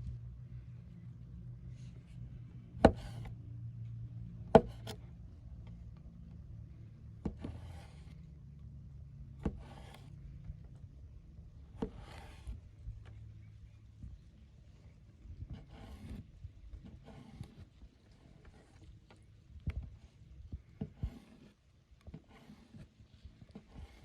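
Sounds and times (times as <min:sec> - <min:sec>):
knife chopping on wood: 0:02.8 - 0:03.2, 0:04.5 - 0:05.0
short scraping rustle: 0:15.5 - 0:19.2, 0:20.6 - 0:24.0.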